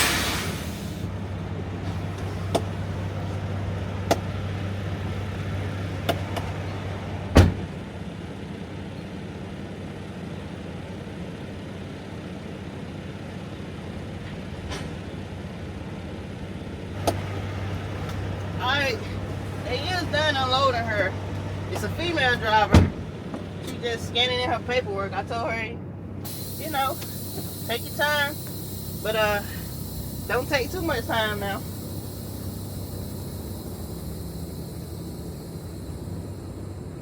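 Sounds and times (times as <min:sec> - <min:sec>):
hiss: 0:00.0 - 0:01.1, 0:26.2 - 0:37.0
truck cab hum: 0:00.0 - 0:37.0
loud thump: 0:07.4 - 0:07.8, 0:22.7 - 0:23.1.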